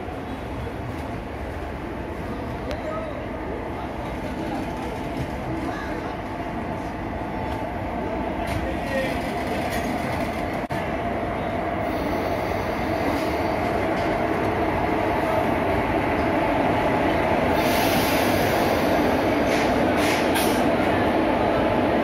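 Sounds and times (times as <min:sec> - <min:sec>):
train rumbling on rails: 0:00.0 - 0:22.0.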